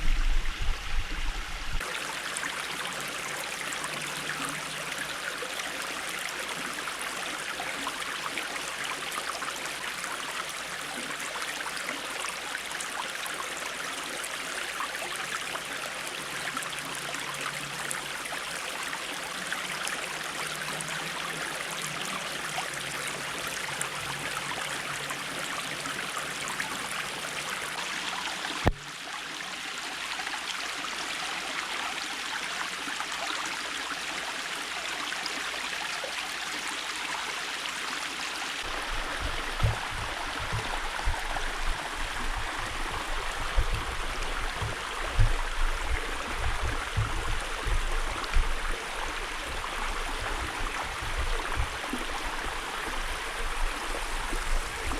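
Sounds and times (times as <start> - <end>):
creek water running: 0.0 - 54.9
low thumping rumbles: 38.7 - 54.9.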